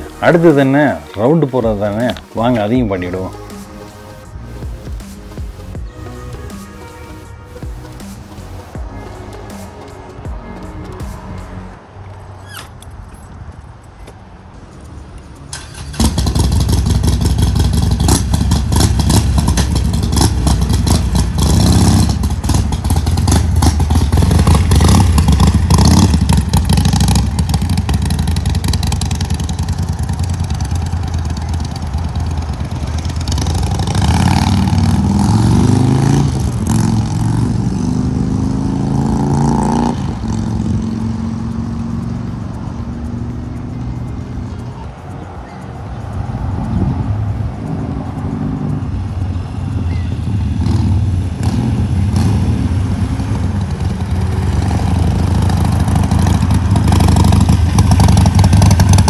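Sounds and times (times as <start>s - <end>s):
motorcycle engine revving: 15.6s - 44.8s, 46.1s - 59.0s.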